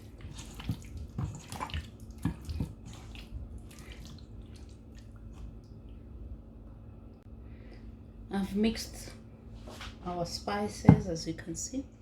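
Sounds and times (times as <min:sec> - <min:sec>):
wet smacks of mixing marinade: 0:00.0 - 0:05.9
faint steady hum: 0:00.0 - 0:12.0.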